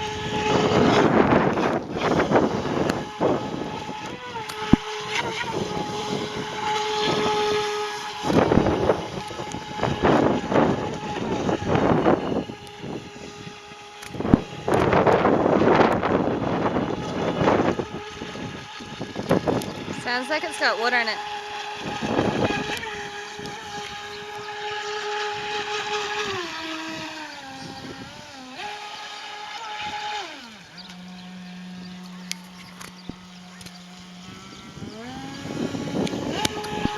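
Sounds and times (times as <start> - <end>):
electric motor whining: 0.0 - 36.9.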